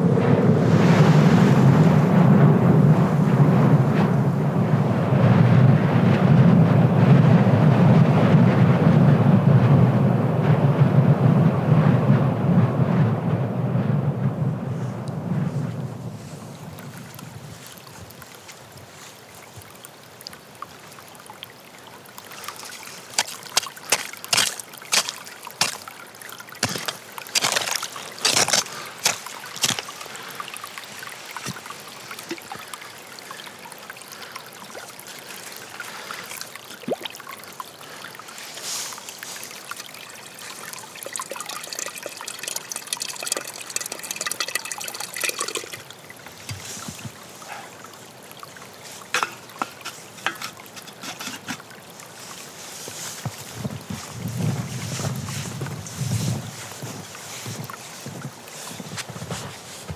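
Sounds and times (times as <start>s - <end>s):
water trickling and pouring: 16.2s - 59.9s.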